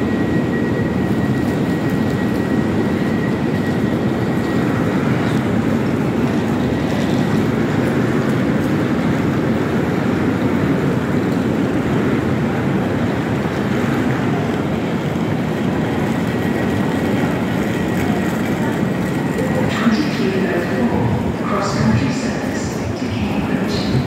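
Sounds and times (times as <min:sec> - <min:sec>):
train humming: 0:00.0 - 0:24.0.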